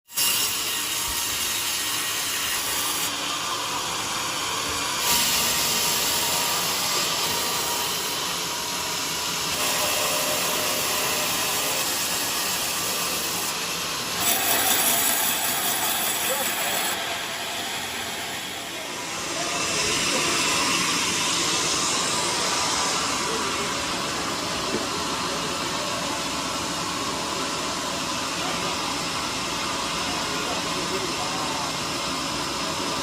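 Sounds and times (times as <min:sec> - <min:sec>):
sawmill blade cutting log: 0:00.2 - 0:25.1.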